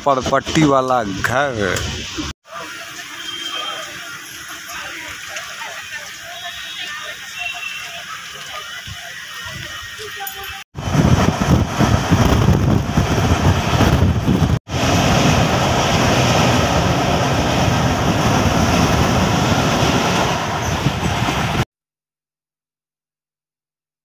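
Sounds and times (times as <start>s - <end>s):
train coach rumbling on track: 0.0s - 21.7s
wind buffeting microphone: 10.8s - 21.6s.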